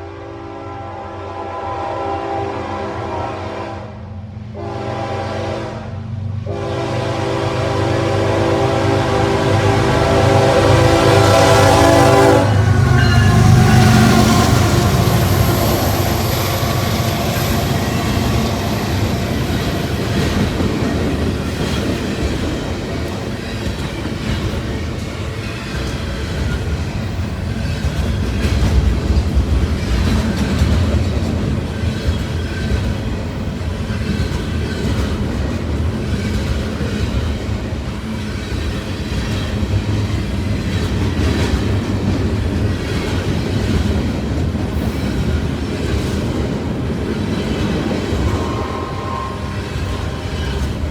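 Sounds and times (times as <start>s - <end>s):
freight cars rolling past: 7.3s - 50.9s
high wheel squeal: 10.8s - 20.2s, 48.1s - 50.9s
wheels clacking over rail joints: 11.8s - 50.9s.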